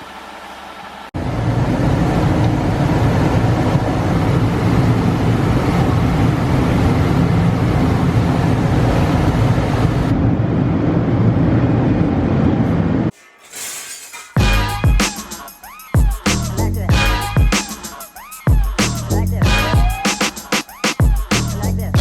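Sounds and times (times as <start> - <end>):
large vehicle engine droning: 1.2 - 13.1.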